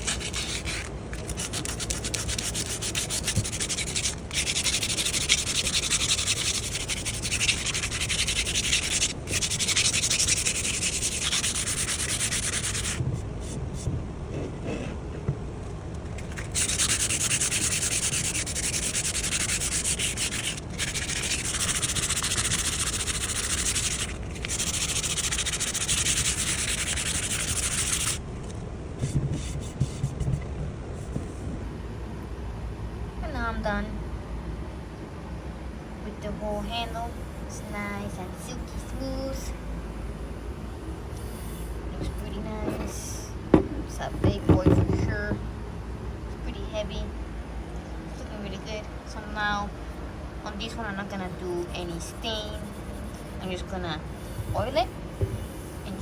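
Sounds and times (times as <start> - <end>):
sanding wooden handle: 0.0 - 13.0, 16.2 - 28.2, 50.9 - 56.0.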